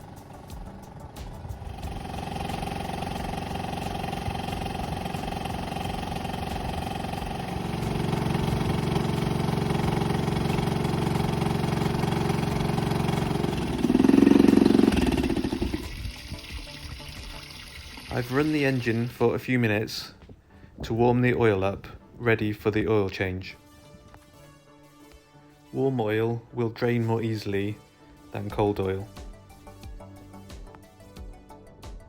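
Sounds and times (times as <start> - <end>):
outboard motor running: 0.0 - 19.1.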